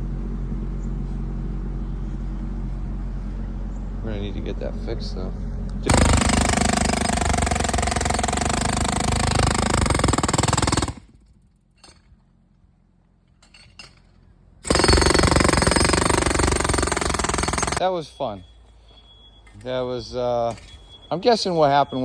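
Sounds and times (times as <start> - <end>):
jackhammer breaking concrete: 5.9 - 11.2, 14.6 - 17.8.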